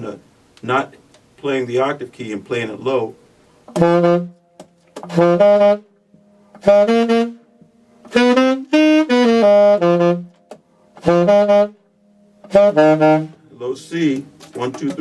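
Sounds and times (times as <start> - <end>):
alto saxophone blues riff: 3.6 - 15.0.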